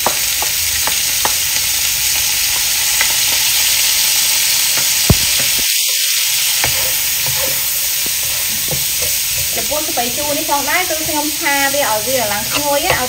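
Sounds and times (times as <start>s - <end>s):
greens sizzling in hot oil: 0.0s - 13.0s
spatula stirring in wok: 6.4s - 13.0s
spatula tapping the pan: 6.6s - 11.8s, 12.4s - 13.0s.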